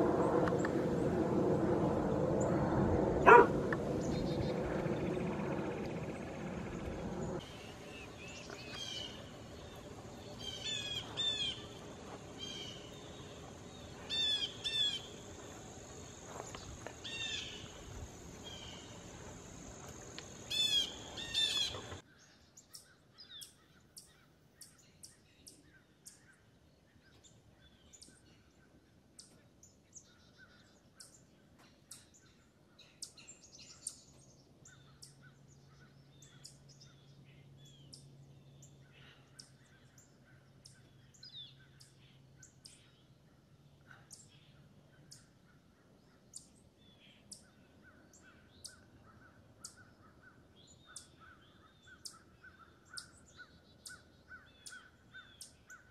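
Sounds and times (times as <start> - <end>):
birds squawking: 3.2 - 4.5, 7.5 - 11.8, 14.1 - 15.2, 20.5 - 22.0
small birds chirping: 3.2 - 55.9.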